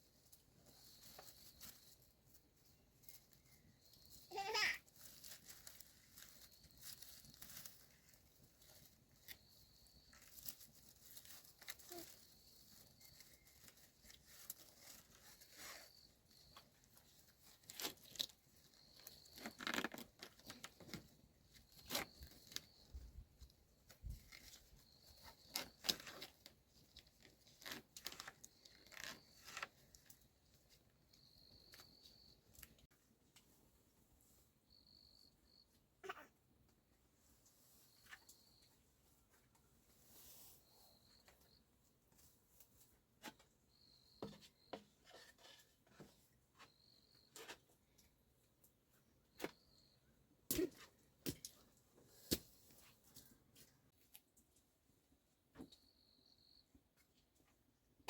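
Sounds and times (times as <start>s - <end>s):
faint rustling and tearing: 4.3s - 16.0s
faint high chirp: 8.7s - 17.6s, 18.6s - 26.3s, 31.0s - 32.8s, 34.2s - 36.3s, 37.5s - 39.3s, 40.1s - 41.8s, 43.7s - 45.3s, 46.5s - 47.6s, 49.2s - 50.2s, 55.5s - 56.8s.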